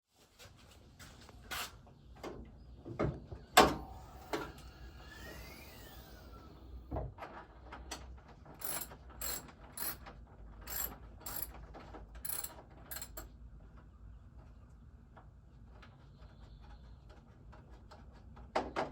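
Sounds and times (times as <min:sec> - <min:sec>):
ratchet wrench clicking: 0:08.6 - 0:10.0, 0:10.7 - 0:11.5, 0:12.2 - 0:13.2
tools knocking on metal: 0:08.6 - 0:10.0, 0:10.7 - 0:11.5, 0:12.2 - 0:13.2.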